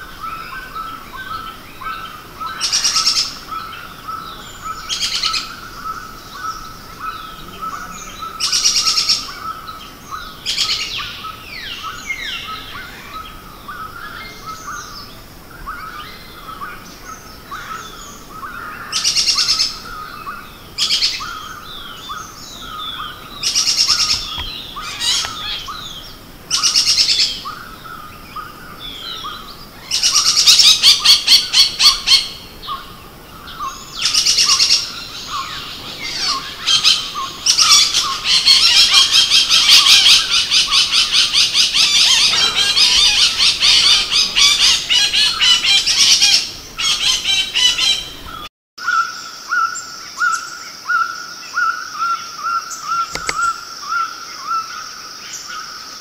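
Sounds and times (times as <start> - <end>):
forest bird calls: 0.0 - 56.0
fast rattling bird trills: 8.3 - 49.0.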